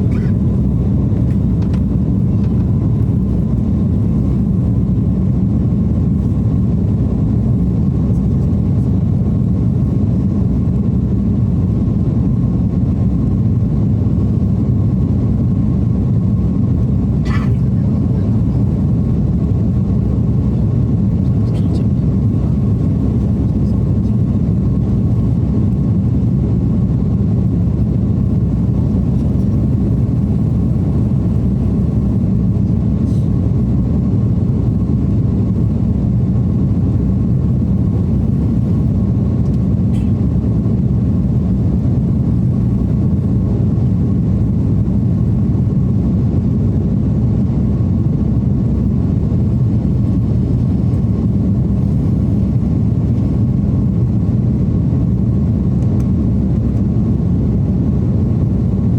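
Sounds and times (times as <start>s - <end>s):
airliner cabin engine rumble: 0.0s - 58.9s.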